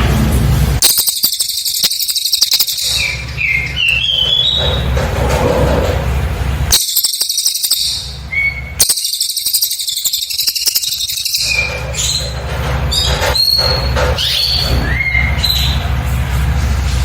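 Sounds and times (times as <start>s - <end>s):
bird trilling and whistling: 0.8s - 5.0s, 6.7s - 15.8s.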